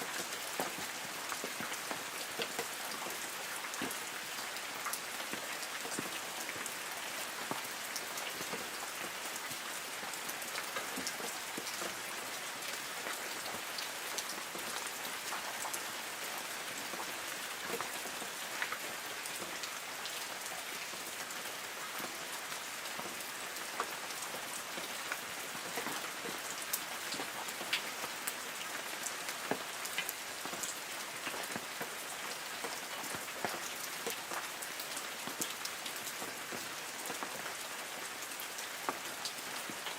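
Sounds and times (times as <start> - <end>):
raindrops pattering on leaves: 0.0 - 39.9
steady hiss of rain: 0.0 - 39.9.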